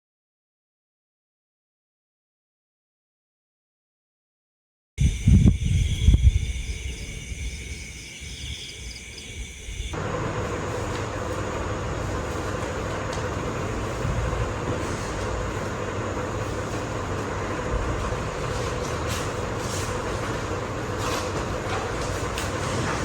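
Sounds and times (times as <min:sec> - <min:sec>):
faint steady tone: 0:05.0 - 0:10.0
low rumbling hum: 0:05.0 - 0:23.0.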